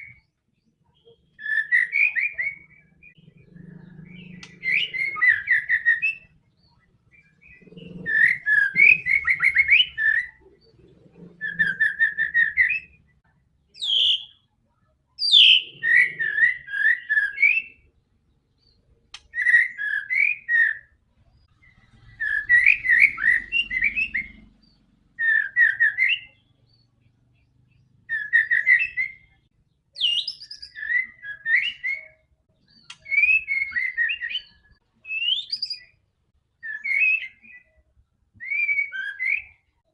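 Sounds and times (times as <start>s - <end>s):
bird singing whistled phrases: 0.9s - 3.2s, 4.2s - 10.4s, 11.4s - 13.1s, 13.8s - 14.4s, 15.2s - 17.9s, 18.6s - 20.9s, 21.9s - 24.4s, 25.2s - 26.5s, 28.1s - 29.4s, 30.0s - 36.0s, 36.6s - 37.8s, 38.4s - 39.7s.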